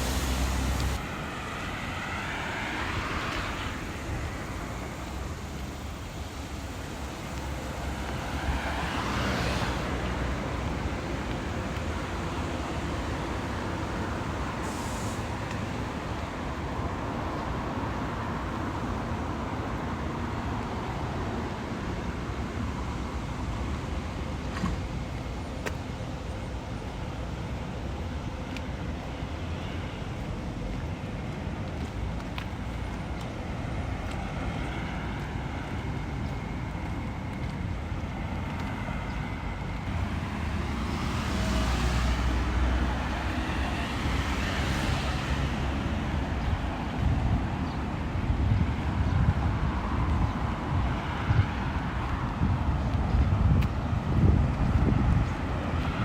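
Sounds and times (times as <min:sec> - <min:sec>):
car passing close: 0:00.0 - 0:05.4, 0:07.6 - 0:11.7, 0:39.7 - 0:46.2
traffic on wet street: 0:00.0 - 0:56.0.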